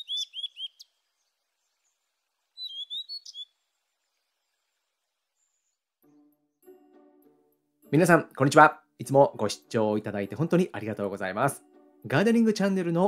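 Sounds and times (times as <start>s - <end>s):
songbird chirping: 0.0s - 6.8s.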